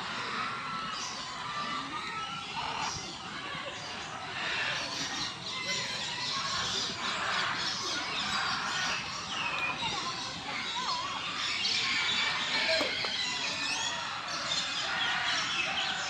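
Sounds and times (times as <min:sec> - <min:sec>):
birds chirping and chattering: 0:00.0 - 0:16.0
sliding bird calls: 0:06.5 - 0:14.0.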